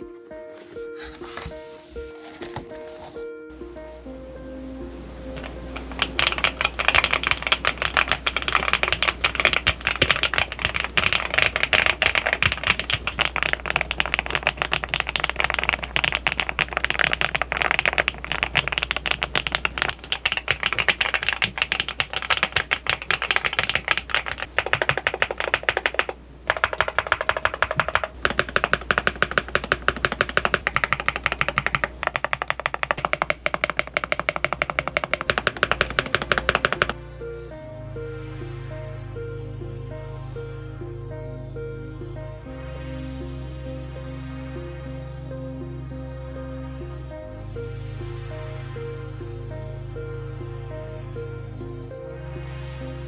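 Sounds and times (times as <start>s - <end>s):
mechanical keyboard typing: 5.3s - 37.0s.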